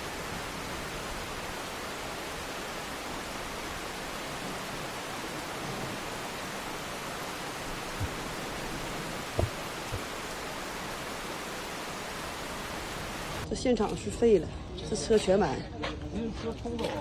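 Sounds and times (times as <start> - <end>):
water rushing: 0.0 - 13.4
low thumps: 4.0 - 11.9.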